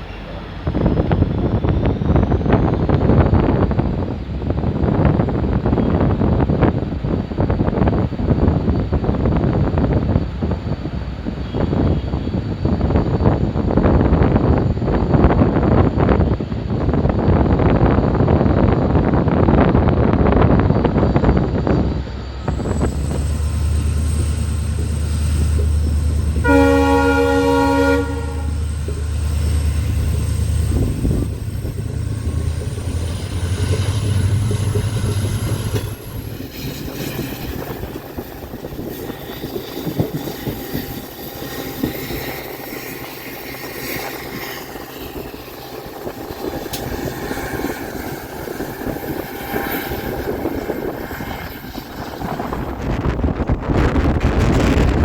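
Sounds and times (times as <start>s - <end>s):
diesel locomotive engine rumbling: 0.0s - 55.0s
train running on track: 0.0s - 55.0s
locomotive horn: 26.0s - 31.3s.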